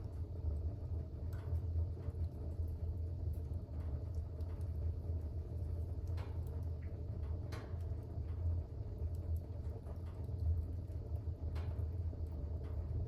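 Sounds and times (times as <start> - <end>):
faint fire crackles: 0.0 - 13.0
fire rumbling in fireplace: 0.0 - 13.0.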